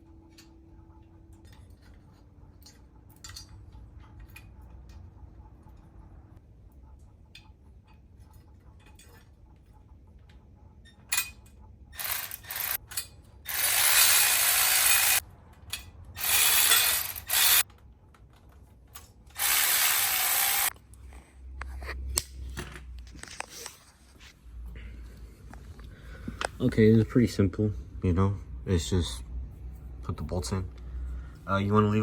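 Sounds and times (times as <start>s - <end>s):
ratchet wrench clicking: 12.0s - 15.2s, 16.2s - 17.6s, 19.4s - 20.7s.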